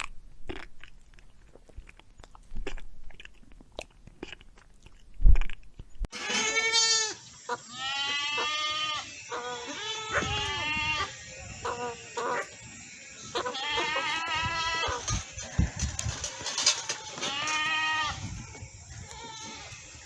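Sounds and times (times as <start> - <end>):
high quavering bleats: 6.1 - 20.0.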